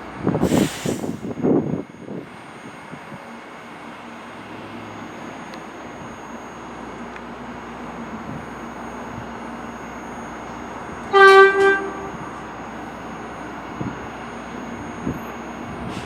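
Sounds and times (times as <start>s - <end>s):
subway train horn blast: 11.0s - 12.5s.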